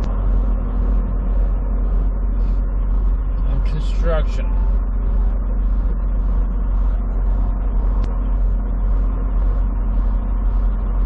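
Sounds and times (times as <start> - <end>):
truck engine and road drone: 0.0 - 11.0.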